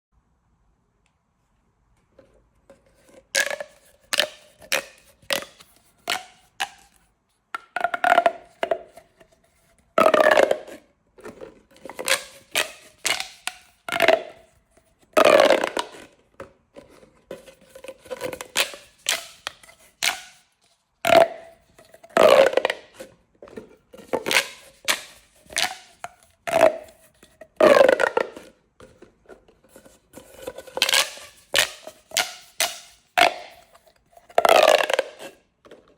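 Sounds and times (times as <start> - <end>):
plastic pop tubes crackling: 3.3 - 9.0, 10.0 - 14.5, 15.2 - 16.6, 17.8 - 23.1, 24.0 - 28.6, 30.4 - 35.8.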